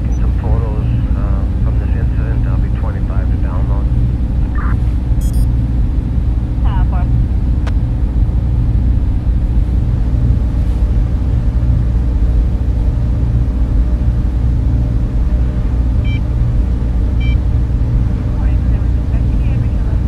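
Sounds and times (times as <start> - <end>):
servers and cooling fans humming: 0.0 - 20.0
short high tones: 4.6 - 5.5.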